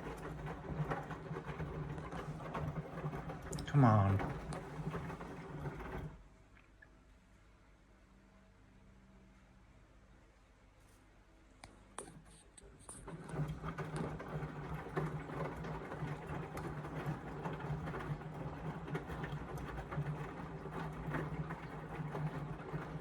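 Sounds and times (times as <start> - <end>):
washing machine running: 0.0 - 6.4, 12.2 - 23.0.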